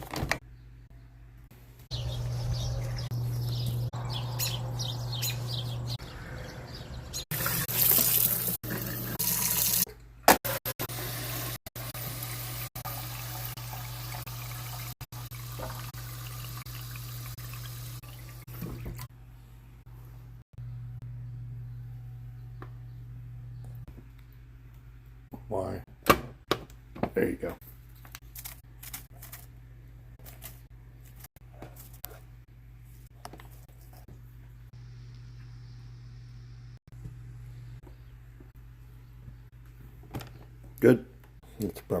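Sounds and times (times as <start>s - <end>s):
water running from a tap: 7.3s - 9.9s, 10.9s - 19.1s
steady low hum: 19.1s - 25.5s, 32.2s - 41.5s.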